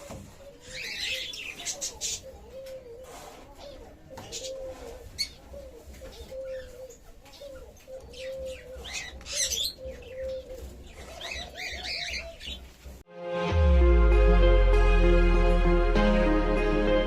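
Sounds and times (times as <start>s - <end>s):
bird cooing: 0.0s - 12.6s
birds chirping: 0.0s - 13.0s.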